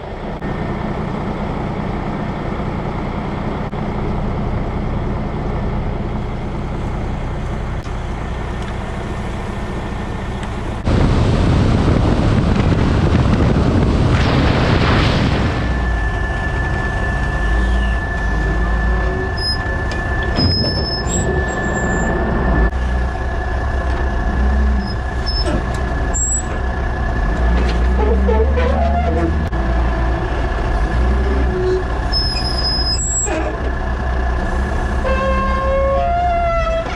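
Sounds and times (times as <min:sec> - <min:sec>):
dump truck engine running: 0:00.0 - 0:36.9
steady high whine: 0:14.0 - 0:25.3.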